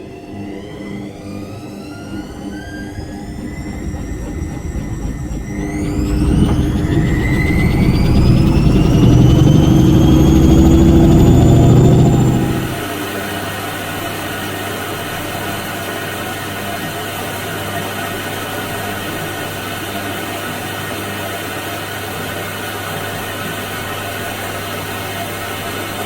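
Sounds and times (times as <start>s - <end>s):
washing machine running: 2.1s - 12.8s.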